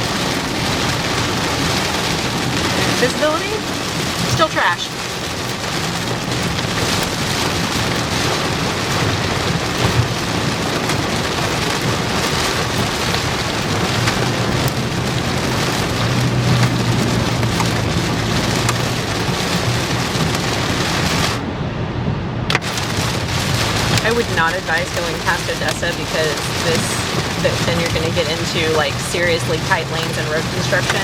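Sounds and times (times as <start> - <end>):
engine and tyres on wet road: 0.0 - 31.0
heavy rain on vehicle: 0.0 - 31.0.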